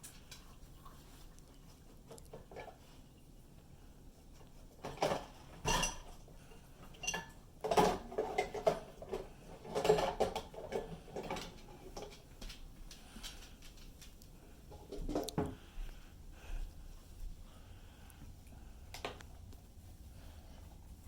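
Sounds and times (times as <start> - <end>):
dishes and cutlery clattering: 4.8 - 12.2, 14.7 - 15.6.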